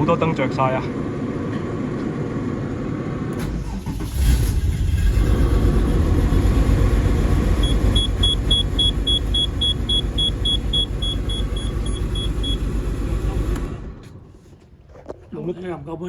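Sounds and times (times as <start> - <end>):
car engine starting and running: 0.0 - 14.7
warning chime beeping: 7.6 - 12.7.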